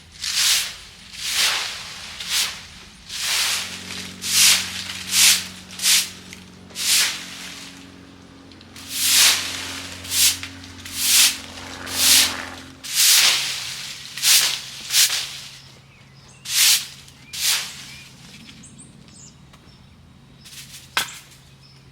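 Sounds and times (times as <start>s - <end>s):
dry leaves rustling: 0.0s - 18.6s
steady low hum: 0.0s - 20.6s.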